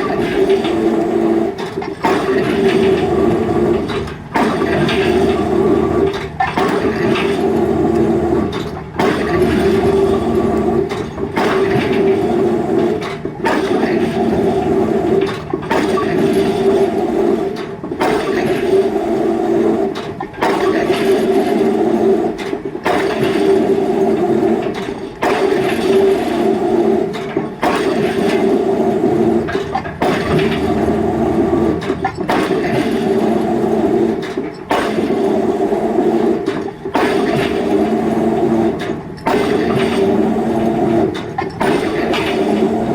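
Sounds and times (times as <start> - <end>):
diesel engine running under load: 0.0 - 18.5, 27.2 - 34.5.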